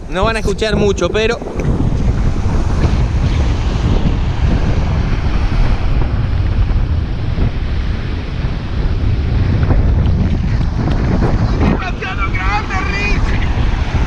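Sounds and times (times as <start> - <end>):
surf breaking on shore: 0.0 - 14.0
wind buffeting microphone: 0.0 - 14.0.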